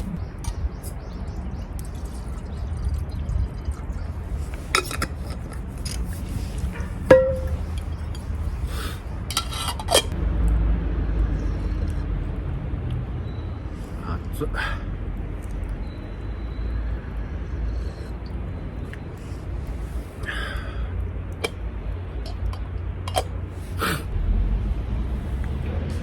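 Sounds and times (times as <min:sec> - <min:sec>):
metal cookware clinking and clattering: 0:07.1 - 0:07.8, 0:09.3 - 0:10.1, 0:22.3 - 0:23.3
steady low rumble: 0:14.8 - 0:26.0.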